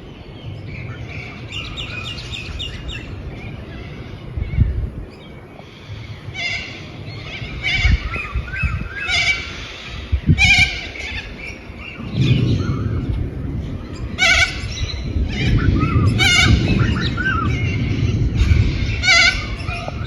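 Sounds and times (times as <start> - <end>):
low rumbling noise: 0.0 - 20.0
harsh animal calls: 14.0 - 20.0.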